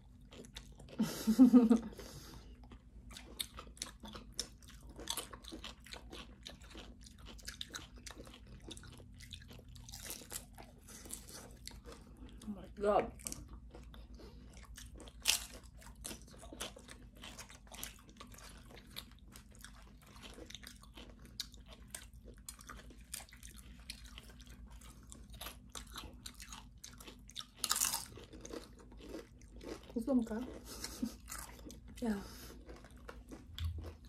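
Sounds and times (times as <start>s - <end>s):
crunching tortilla chips: 3.1s - 12.3s, 13.3s - 31.8s.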